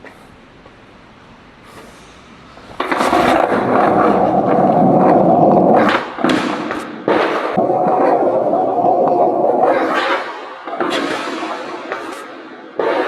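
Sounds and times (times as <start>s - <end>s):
skateboard wheels rolling on tarmac: 2.6s - 12.2s.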